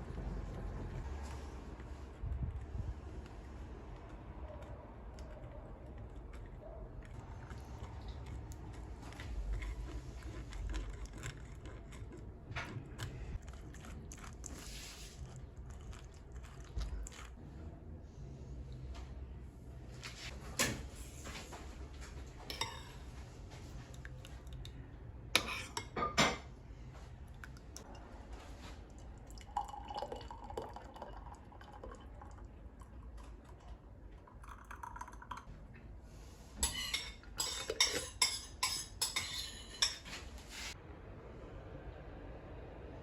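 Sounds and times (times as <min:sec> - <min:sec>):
utensils and dishes clinking: 0:22.5 - 0:23.0, 0:36.6 - 0:40.2.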